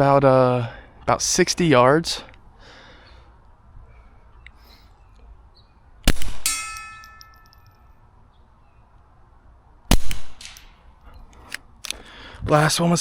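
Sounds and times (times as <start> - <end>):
suppressed gunshots: 6.0 - 6.8, 9.9 - 10.8
steel target ringing: 6.3 - 8.0.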